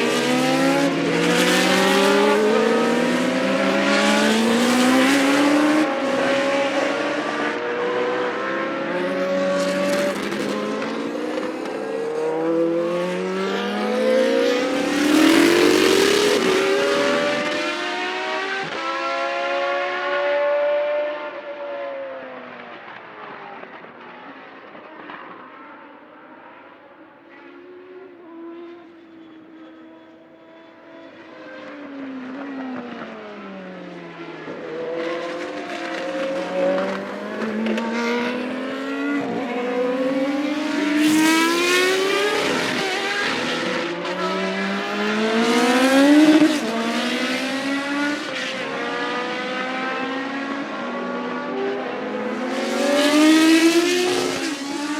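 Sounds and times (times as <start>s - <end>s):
race car engine revving: 0.0s - 21.2s, 34.8s - 54.9s.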